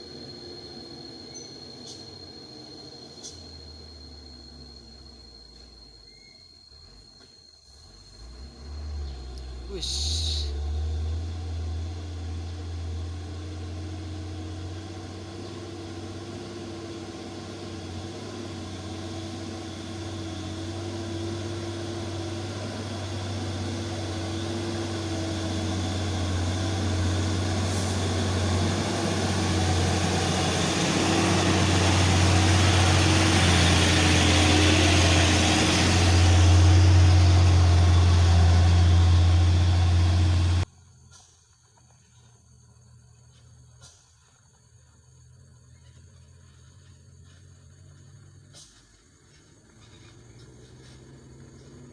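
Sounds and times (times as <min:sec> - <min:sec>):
road noise: 0:00.0 - 0:06.1, 0:06.7 - 0:40.7, 0:45.8 - 0:51.9
truck diesel engine labouring: 0:00.0 - 0:06.1, 0:07.7 - 0:40.7, 0:46.2 - 0:51.9.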